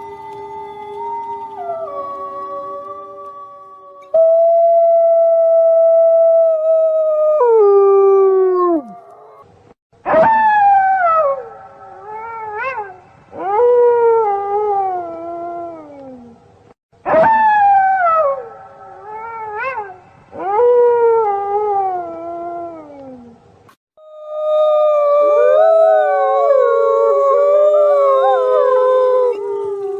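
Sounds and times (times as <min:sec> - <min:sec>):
wolves howling: 0:24.0 - 0:29.9.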